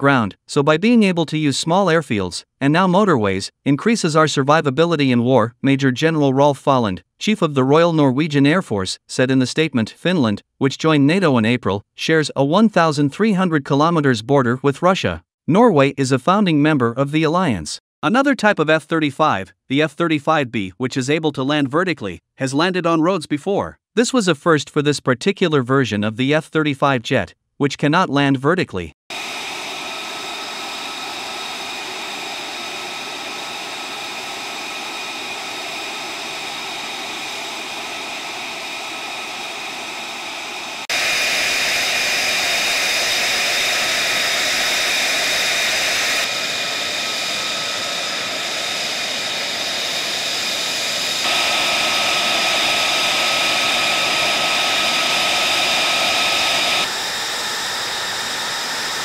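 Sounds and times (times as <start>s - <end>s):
jet engine whine and roar: 29.1s - 59.0s.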